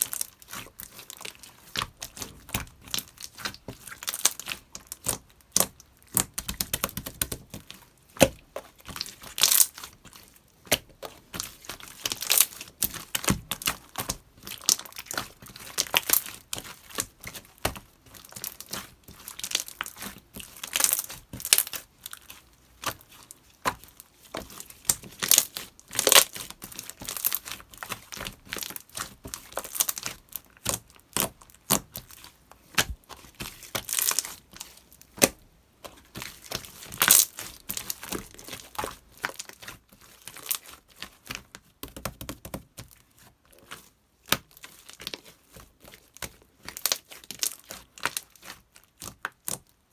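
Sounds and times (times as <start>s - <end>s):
slime crackling and popping: 0.0s - 35.4s, 36.1s - 40.8s.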